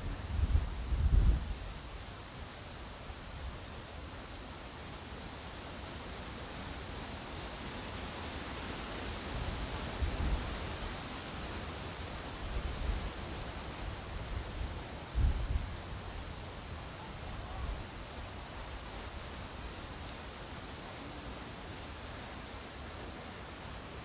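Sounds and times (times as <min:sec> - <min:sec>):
cricket chirping: 0:00.0 - 0:24.0
wind blowing: 0:12.4 - 0:18.4
wind gusts buffeting microphone: 0:13.8 - 0:16.5.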